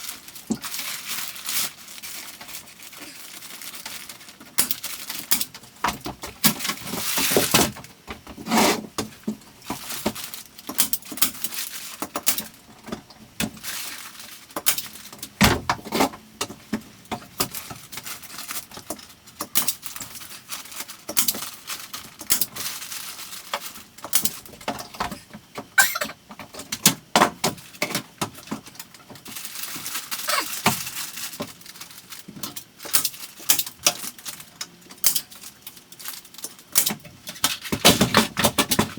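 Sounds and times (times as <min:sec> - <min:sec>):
insulation material rustling: 0:00.0 - 0:05.8, 0:29.1 - 0:33.5.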